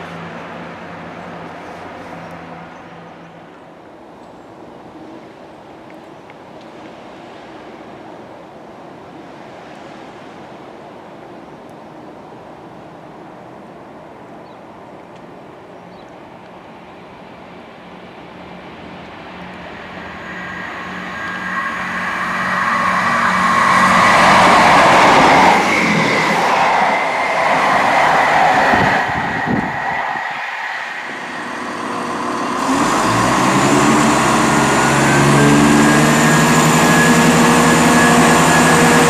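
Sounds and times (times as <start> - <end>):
train running past: 17.1 - 39.0
steady high tone: 19.2 - 39.0.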